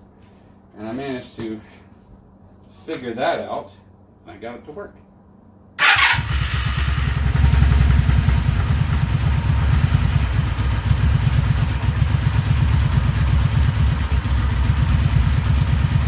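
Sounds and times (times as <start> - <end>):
motorcycle engine idling: 5.8 - 16.0.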